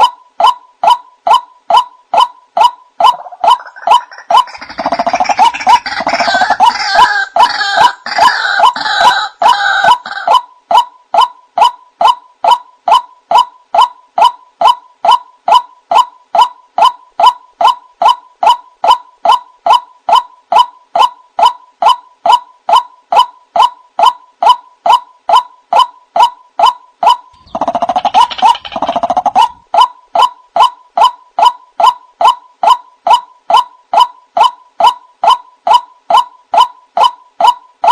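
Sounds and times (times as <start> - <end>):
bird monotonous repeated call: 0.0 - 37.9
raucous croaking bird chorus: 3.2 - 10.2, 27.3 - 29.6.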